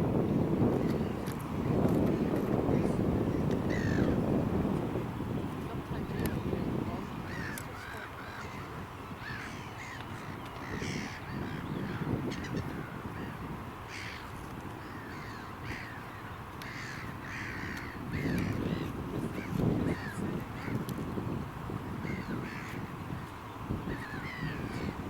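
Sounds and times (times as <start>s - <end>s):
birds harsh calls: 2.7s - 4.3s, 7.0s - 20.9s, 21.9s - 25.0s.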